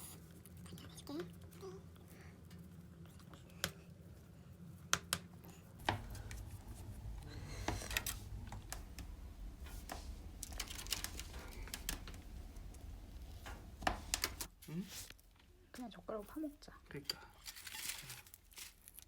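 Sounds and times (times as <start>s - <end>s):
wood fire crackling: 0.0s - 19.0s
low rumble: 5.8s - 14.5s.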